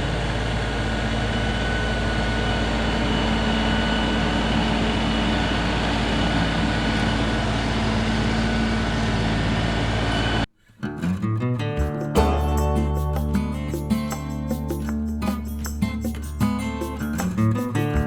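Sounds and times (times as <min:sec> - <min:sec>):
acoustic guitar music: 0:10.5 - 0:18.0.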